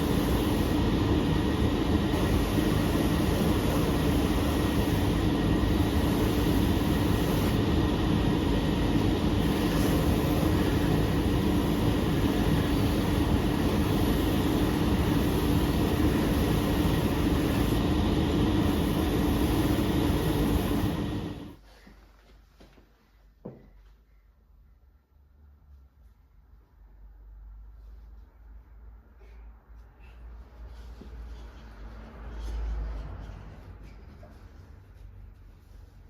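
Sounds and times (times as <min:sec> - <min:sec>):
workshop machine humming and rushing: 0:00.0 - 0:21.6.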